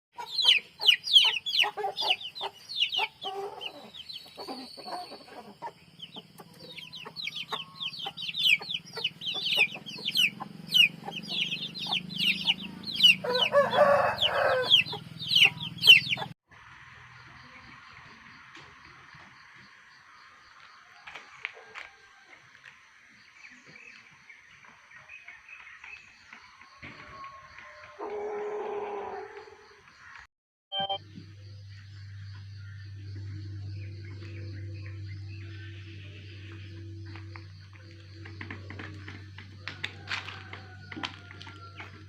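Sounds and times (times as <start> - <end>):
chickens chirping and clucking: 0.2 - 16.4
rooster call: 12.6 - 16.0, 26.8 - 29.7.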